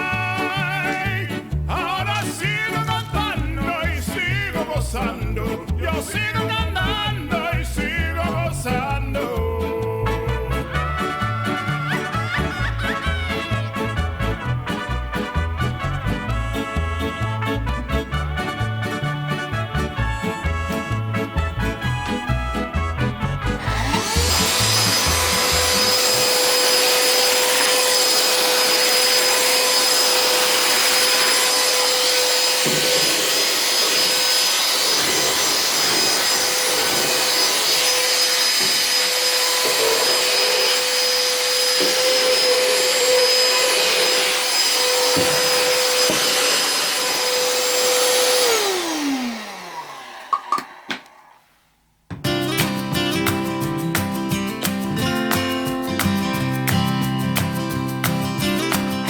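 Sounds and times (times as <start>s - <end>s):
handheld vacuum cleaner motor: 23.6s - 51.3s.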